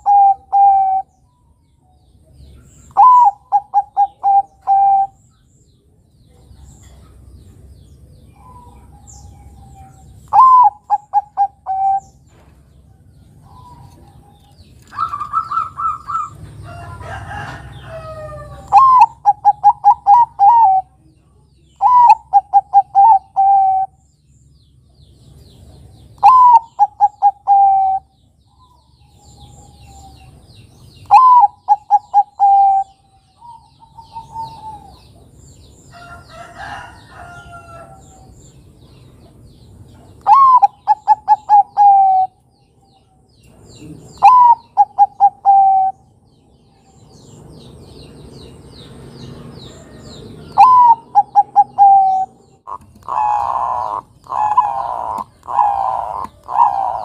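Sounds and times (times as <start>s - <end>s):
dove cooing: 0.0s - 1.1s, 3.0s - 5.2s, 8.4s - 12.2s, 13.4s - 21.0s, 21.8s - 24.0s, 26.2s - 28.1s, 31.0s - 35.2s, 40.2s - 42.4s, 43.8s - 46.0s, 50.5s - 57.0s
small birds chirping: 0.0s - 57.0s.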